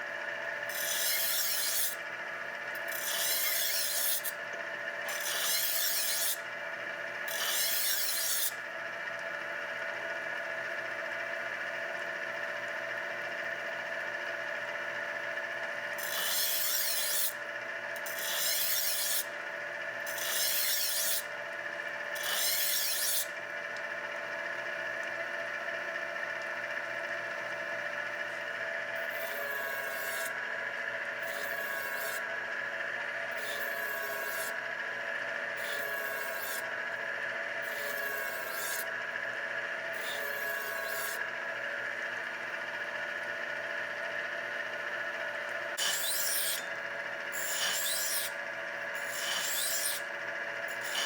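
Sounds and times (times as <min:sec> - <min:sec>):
knife sharpener motor hum: 0:00.0 - 0:51.0
knife blade rasping on wheels: 0:00.7 - 0:02.0, 0:02.8 - 0:04.3, 0:05.1 - 0:06.4, 0:16.0 - 0:17.4, 0:18.0 - 0:19.3, 0:20.0 - 0:21.3, 0:22.1 - 0:23.3, 0:45.8 - 0:50.1, 0:50.7 - 0:51.0.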